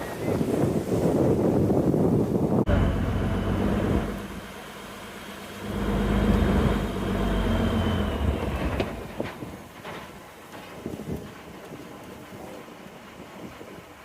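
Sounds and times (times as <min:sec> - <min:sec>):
wind noise on microphone: 0:00.0 - 0:04.4, 0:06.4 - 0:14.0
boat motor running: 0:02.7 - 0:09.6.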